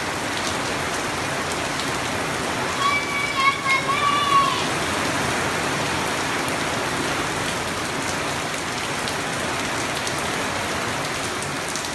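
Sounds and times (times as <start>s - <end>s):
heavy rain falling: 0.0s - 11.9s.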